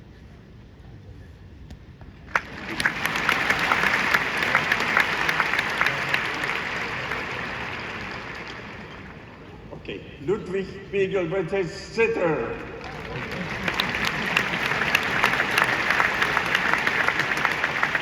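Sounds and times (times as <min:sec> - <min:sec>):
large audience applauding: 0:02.3 - 0:09.7, 0:12.5 - 0:18.0.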